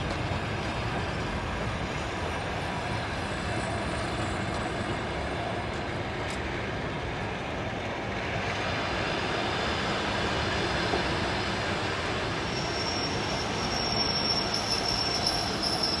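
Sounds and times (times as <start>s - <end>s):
train wheels rumbling on rail: 0.0s - 16.0s
thin high squeal: 12.4s - 16.0s.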